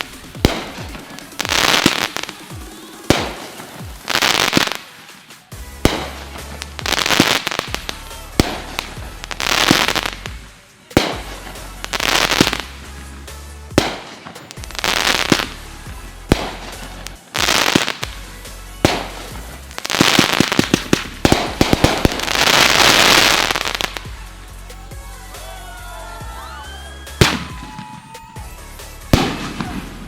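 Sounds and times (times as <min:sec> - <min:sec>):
fireworks bangs and crackling: 0:00.0 - 0:30.0
music: 0:00.0 - 0:30.0.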